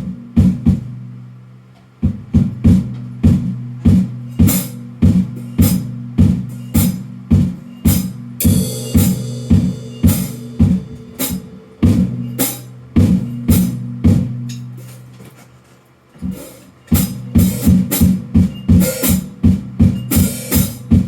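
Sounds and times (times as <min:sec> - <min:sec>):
hand drum beating: 0:02.0 - 0:14.8, 0:17.0 - 0:21.0.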